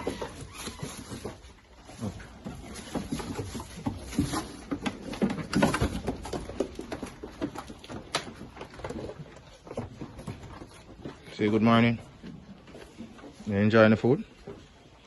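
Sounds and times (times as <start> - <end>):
goats hoof steps and knocks: 0.0 - 15.0.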